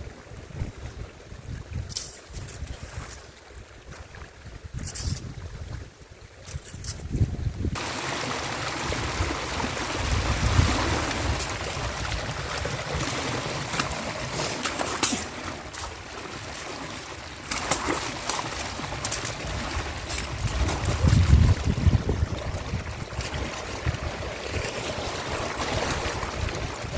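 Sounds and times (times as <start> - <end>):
stream water running: 0.0 - 26.9
wind buffeting the microphone: 0.4 - 3.2, 3.8 - 7.8, 8.9 - 12.8, 19.4 - 24.6, 25.8 - 26.9.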